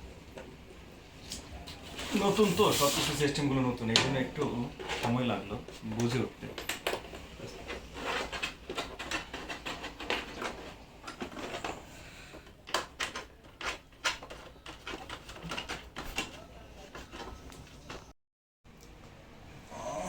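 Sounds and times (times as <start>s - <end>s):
objects clicking and knocking: 3.9s - 18.1s.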